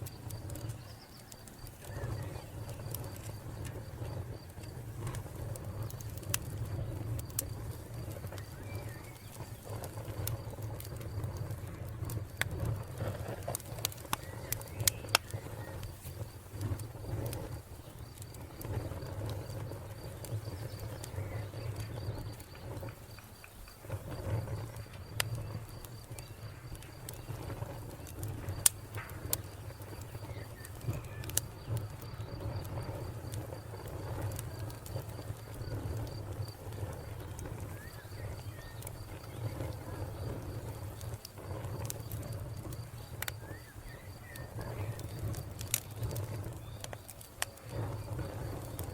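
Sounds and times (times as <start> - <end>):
wood fire crackling and popping: 0.0 - 48.9
cricket chirping: 14.0 - 48.9.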